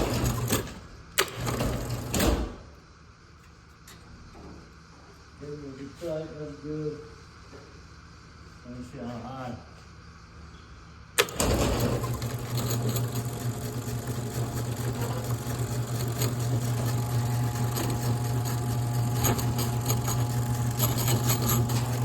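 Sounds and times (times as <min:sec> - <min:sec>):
garage door opener clicks: 0:00.0 - 0:02.7, 0:11.2 - 0:22.0
garage door opener motor hum: 0:00.0 - 0:02.8, 0:11.0 - 0:22.0.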